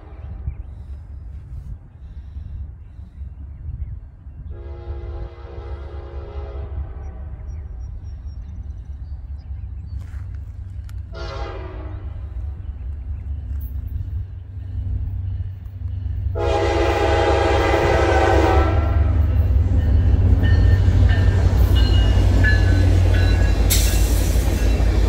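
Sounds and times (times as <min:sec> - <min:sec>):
train wheels rumbling on rails: 0:00.0 - 0:25.0
train horn blasts: 0:04.5 - 0:07.7, 0:11.1 - 0:12.5, 0:16.2 - 0:23.8.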